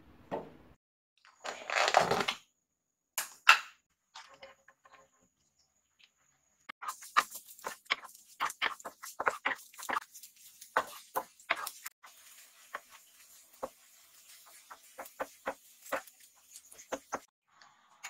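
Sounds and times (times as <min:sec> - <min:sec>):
garlic sizzling in oil: 0:06.8 - 0:17.3
wooden spatula scraping frying pan: 0:06.8 - 0:17.3.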